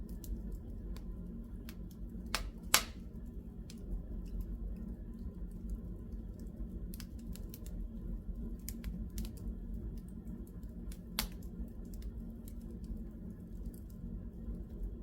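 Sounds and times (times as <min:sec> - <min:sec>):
low steady rumble: 0:00.0 - 0:15.0
wood fire crackling: 0:00.0 - 0:15.0.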